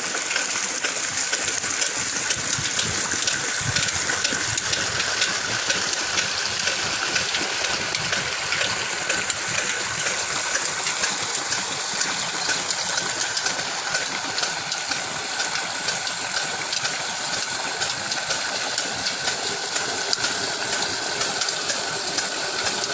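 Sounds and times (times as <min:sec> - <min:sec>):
old engine running: 0:00.0 - 0:22.9.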